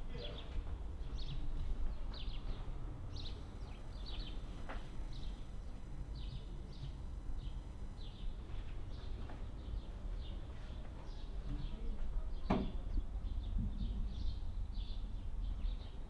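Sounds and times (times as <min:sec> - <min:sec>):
steady low rumble: 0:00.0 - 0:16.0
small bird chirping: 0:00.1 - 0:16.0.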